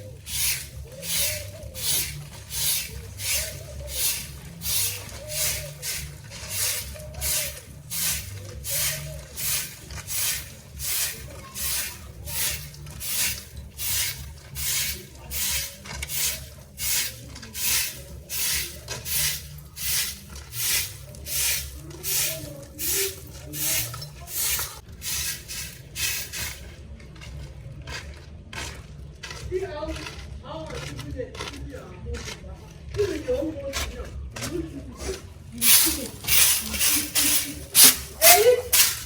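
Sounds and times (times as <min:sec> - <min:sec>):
rhythmic rubbing strokes: 0:00.0 - 0:26.9, 0:35.0 - 0:39.0.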